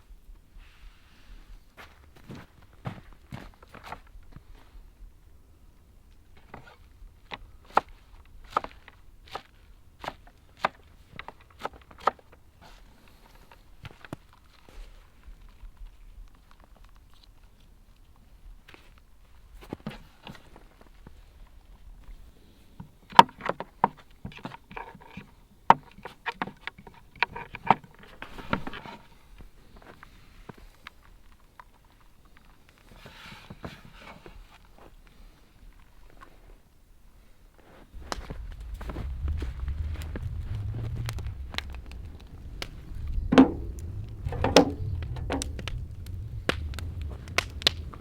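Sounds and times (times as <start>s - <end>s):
rustling: 37.6s - 48.0s
campfire crackling and popping: 37.9s - 48.0s
low rumble: 37.9s - 48.0s
sharp clicks and knocks: 38.0s - 48.0s.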